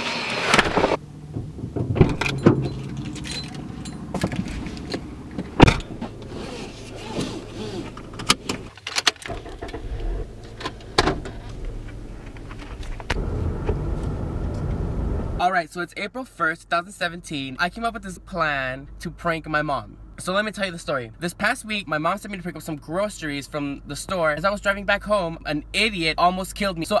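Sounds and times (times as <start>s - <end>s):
clicks and knocks: 0.5s - 6.3s
low steady rumble: 0.8s - 15.5s.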